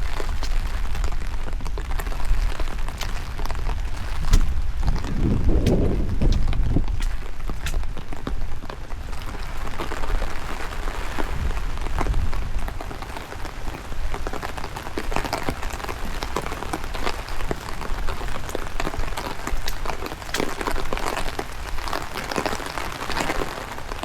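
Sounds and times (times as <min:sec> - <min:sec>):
rain falling: 0:00.0 - 0:24.0
sharp raindrop hits: 0:00.0 - 0:24.0
wind rumble on microphone: 0:00.0 - 0:24.0.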